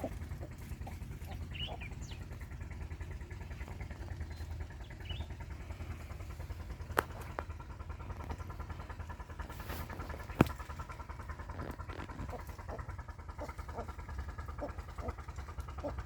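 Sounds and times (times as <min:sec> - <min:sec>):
bird chirp: 0:00.0 - 0:07.3
engine running steadily: 0:00.0 - 0:16.0.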